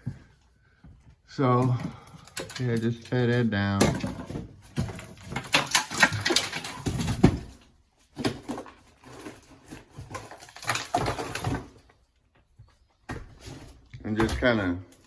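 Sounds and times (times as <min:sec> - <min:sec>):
debris clattering: 0:01.6 - 0:12.0
ceiling being torn down: 0:01.8 - 0:12.0.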